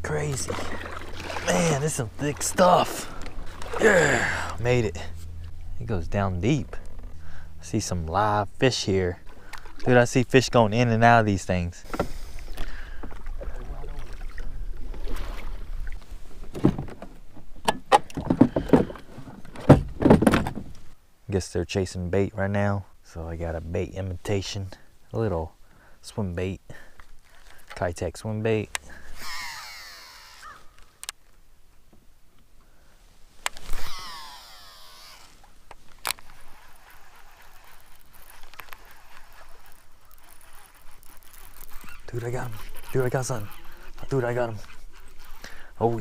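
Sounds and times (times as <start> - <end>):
low handling rumble: 0.0 - 11.5
reel spool whirring: 29.0 - 30.9, 33.5 - 45.6
fishing reel click: 29.2 - 31.2, 33.5 - 35.3, 36.0 - 44.0.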